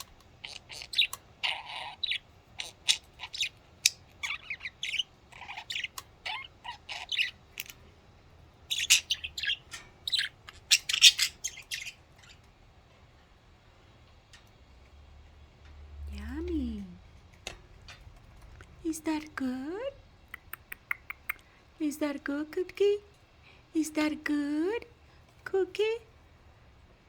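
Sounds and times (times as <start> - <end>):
budgerigars chirping and chattering: 0.0 - 7.8, 8.7 - 12.4.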